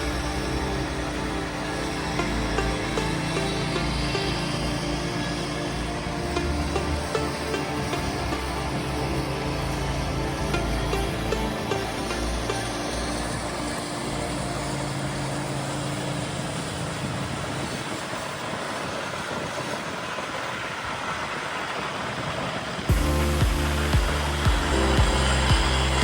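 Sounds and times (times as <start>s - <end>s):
truck engine and road noise: 0.0s - 26.0s
loud low rumbling sound: 22.9s - 26.0s.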